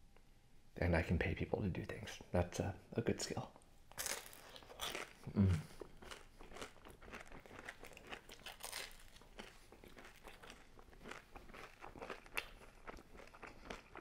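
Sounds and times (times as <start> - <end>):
pizza crust crunching: 4.0 - 14.0.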